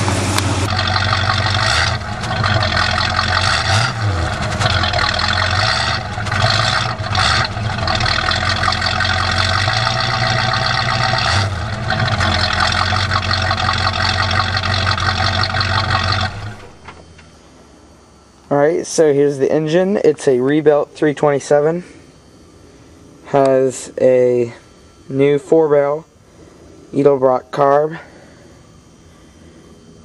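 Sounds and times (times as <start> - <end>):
pickup truck engine running: 0.0 - 17.3.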